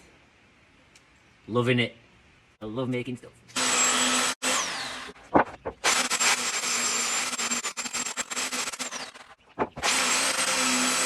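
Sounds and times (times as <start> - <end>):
power tool motor whining: 3.6 - 5.2, 5.8 - 11.0.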